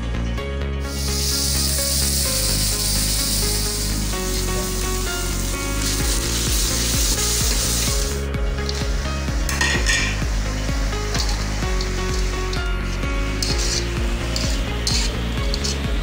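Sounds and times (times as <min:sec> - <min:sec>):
background music: 0:00.0 - 0:16.0
butter sizzling in a wok: 0:00.9 - 0:16.0
metal spatula scraping wok: 0:05.9 - 0:16.0.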